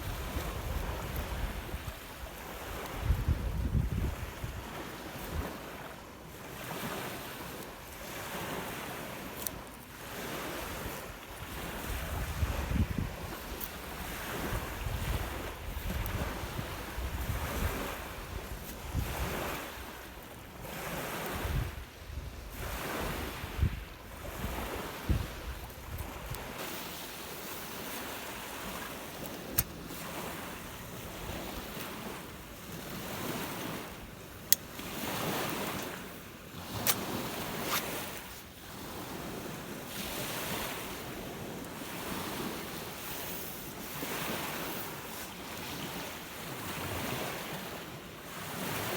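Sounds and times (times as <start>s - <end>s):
strong wind: 0.0s - 4.7s, 10.6s - 19.8s, 21.3s - 26.6s
wind buffeting microphone: 0.0s - 5.5s, 10.7s - 20.0s, 21.3s - 26.6s
waves breaking on shore: 0.0s - 48.9s.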